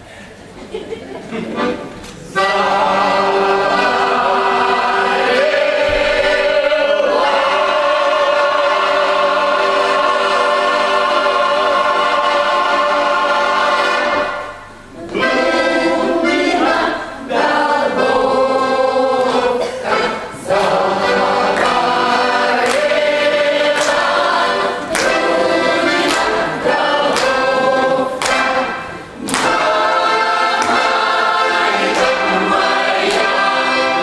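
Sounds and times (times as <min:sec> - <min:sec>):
choir singing sustained chords: 0:02.3 - 0:34.0.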